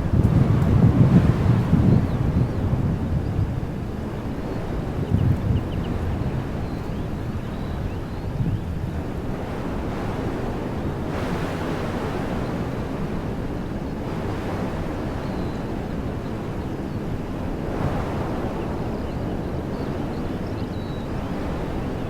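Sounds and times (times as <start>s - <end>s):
wind rumble on microphone: 0.0s - 22.0s
wind through trees: 0.0s - 22.0s
faint bird chirp: 19.0s - 21.1s.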